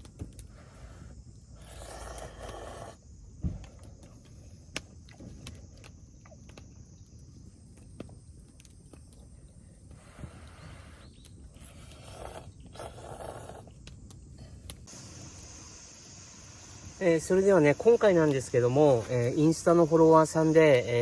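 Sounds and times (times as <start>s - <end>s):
insects chirring: 0.0s - 21.0s
rustle: 0.0s - 21.0s
dull thump: 3.4s - 3.7s.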